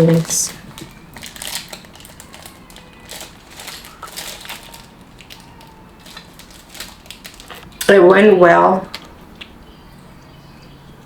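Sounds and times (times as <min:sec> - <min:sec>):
chewing and crunching pickle: 0:00.5 - 0:07.9.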